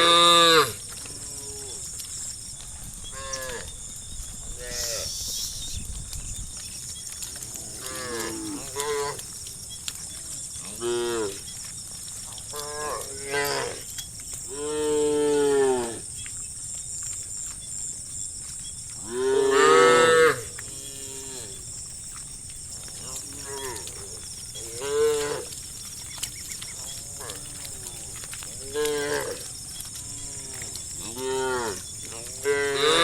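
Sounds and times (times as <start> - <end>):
drawn-out animal calls: 0.0 - 33.0
high-pitched hiss: 4.8 - 5.9.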